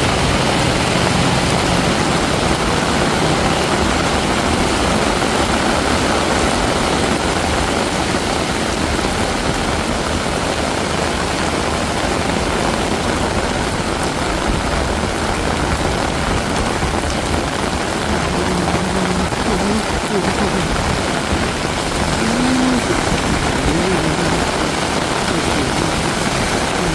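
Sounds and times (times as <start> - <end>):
heavy rain on street: 0.0 - 26.9
person speaking briefly: 18.1 - 21.0, 22.0 - 26.9.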